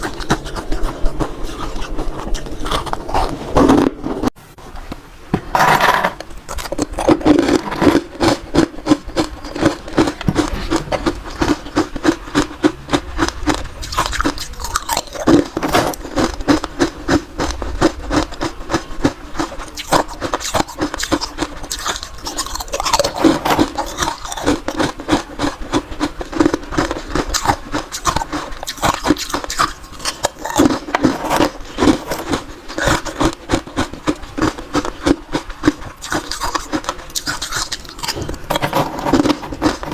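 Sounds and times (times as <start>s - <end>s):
person chewing ice: 0.0s - 4.3s, 6.1s - 39.9s.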